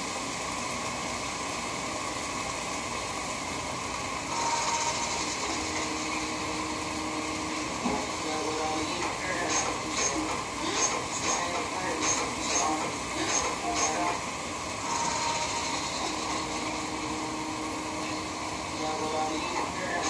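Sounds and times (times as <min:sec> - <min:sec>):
food frying in a wok: 0:00.0 - 0:20.0
machine-like hum: 0:04.3 - 0:20.0.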